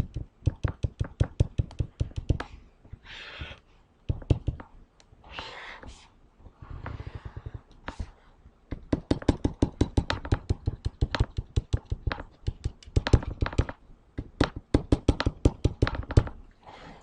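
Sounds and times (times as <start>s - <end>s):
drawing tool tapping on surface: 8.7s - 13.8s.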